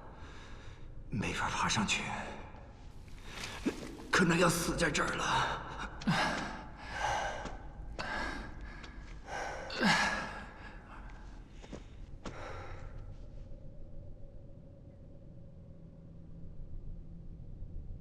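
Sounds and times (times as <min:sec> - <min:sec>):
faint steady hum: 0:00.0 - 0:18.0
man breathing heavily: 0:06.0 - 0:13.2.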